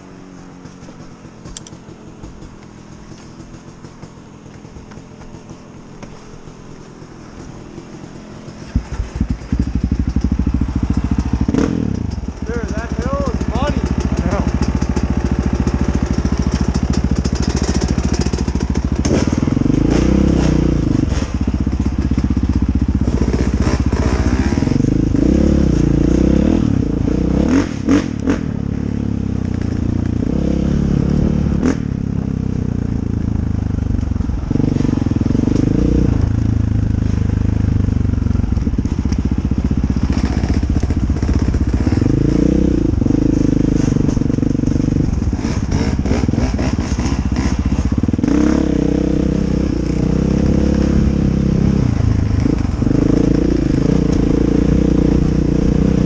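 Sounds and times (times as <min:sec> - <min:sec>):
dirt bike engine revving: 0:00.0 - 0:56.0
sharp knocks and clatters: 0:00.4 - 0:24.1.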